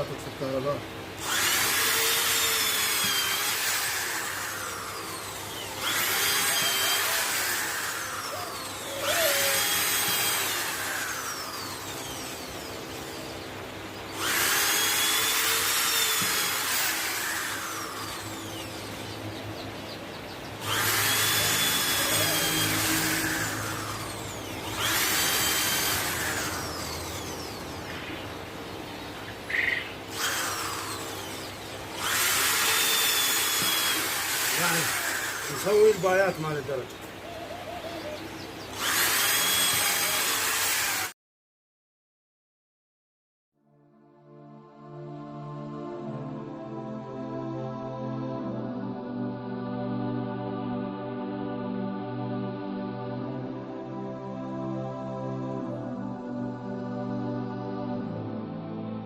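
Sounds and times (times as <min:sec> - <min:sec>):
electric power tool motor: 0:00.0 - 0:41.2.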